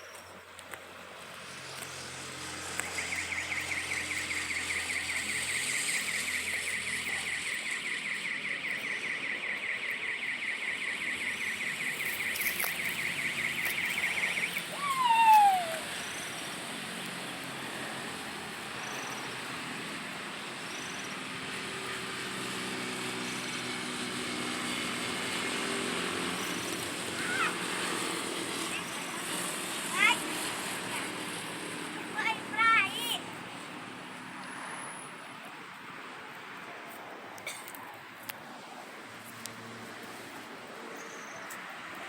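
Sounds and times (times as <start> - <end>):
insect trilling: 10.9 - 16.4.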